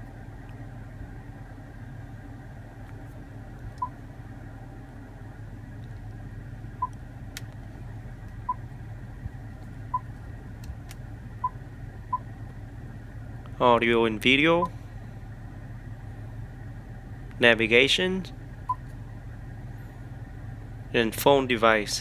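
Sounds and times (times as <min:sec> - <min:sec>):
car engine idling hum: 0:00.0 - 0:22.0.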